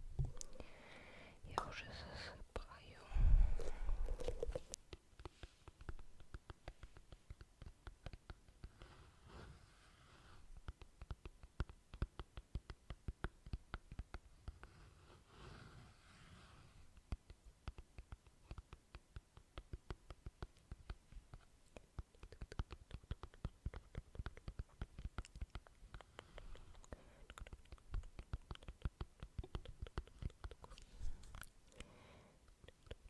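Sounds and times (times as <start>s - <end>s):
soft clicks and taps: 3.5s - 9.0s.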